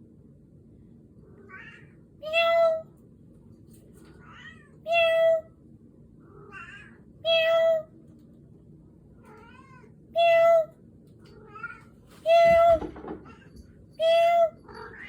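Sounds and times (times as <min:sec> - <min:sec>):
cat meowing: 0:06.3 - 0:07.7.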